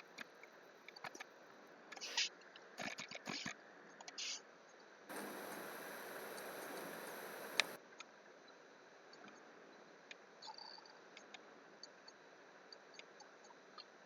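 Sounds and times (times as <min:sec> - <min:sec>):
computer mouse clicks: 0:05.1 - 0:07.8
steady hiss: 0:05.1 - 0:07.8.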